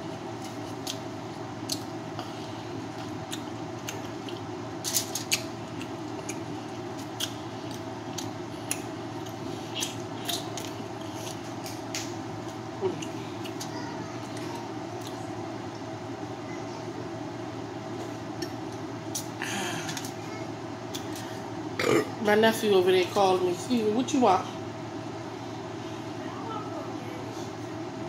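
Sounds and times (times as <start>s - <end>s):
person chewing food: 0.0s - 15.8s
background hum: 0.0s - 28.0s.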